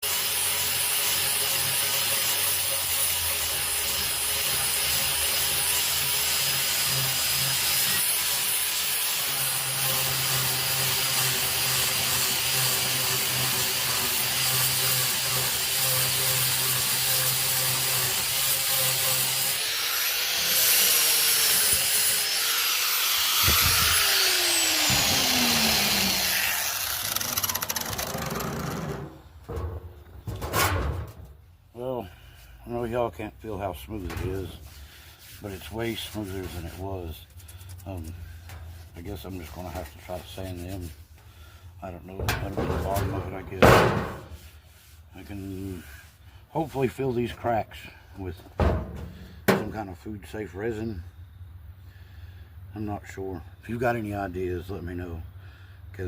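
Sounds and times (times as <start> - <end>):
sander grinding on wood: 0.0 - 29.8, 32.7 - 41.0
power sander motor whine: 19.5 - 29.2.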